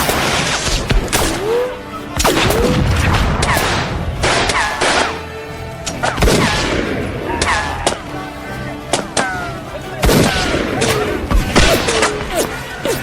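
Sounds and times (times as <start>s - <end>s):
rifle shots and volleys: 0.0s - 1.6s, 2.2s - 5.2s
background music: 0.0s - 13.0s.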